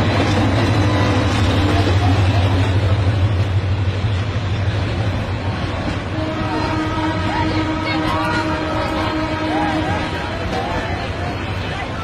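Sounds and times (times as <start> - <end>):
passenger train passing: 0.0 - 12.0.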